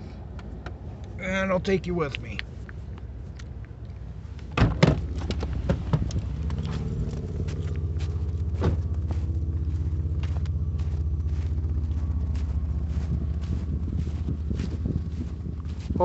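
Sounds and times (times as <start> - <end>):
car engine idling: 0.0 - 16.0
car door clunking open: 4.5 - 6.8, 8.5 - 9.0
footsteps crunching in snow: 5.0 - 16.0.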